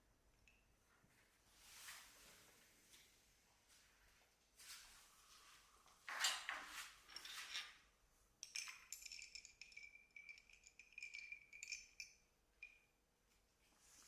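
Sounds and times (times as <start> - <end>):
clinking against a glass: 8.4 - 12.9.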